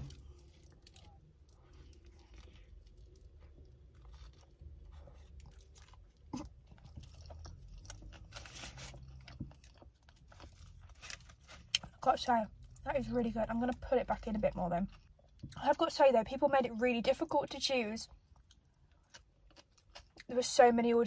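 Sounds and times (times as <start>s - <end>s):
crunching of toasted bread: 0.0s - 12.0s, 18.3s - 20.3s.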